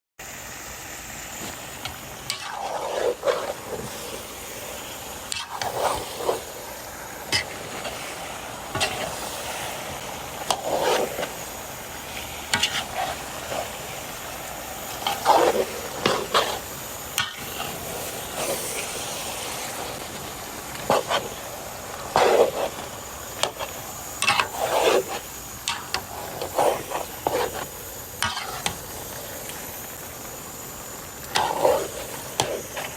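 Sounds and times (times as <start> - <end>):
chicken sizzling in a pot: 0.2 - 32.9
utensil scraping a pot: 10.4 - 13.8, 14.9 - 19.0, 20.7 - 28.8, 31.3 - 32.9.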